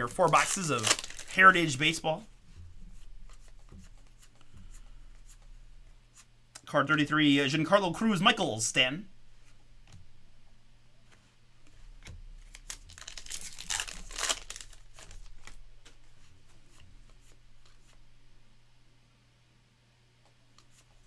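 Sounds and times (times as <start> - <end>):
wrapper tearing and crinkling: 0.0 - 1.8, 12.5 - 15.6
cards rustling: 0.0 - 2.3, 12.4 - 18.0.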